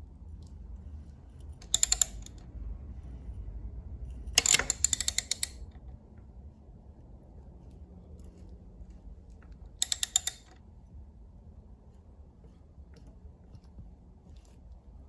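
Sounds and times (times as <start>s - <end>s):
rapid metallic clicking: 1.6s - 2.4s, 4.4s - 5.6s, 9.8s - 10.6s.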